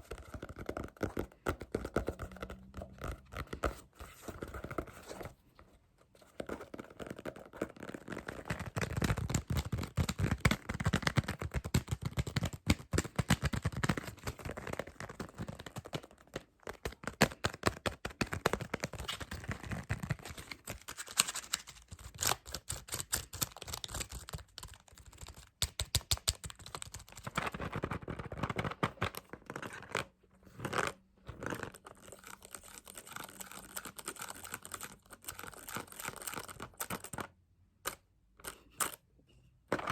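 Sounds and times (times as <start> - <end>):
fast tapping and scratching: 0.0 - 4.9, 6.4 - 30.0.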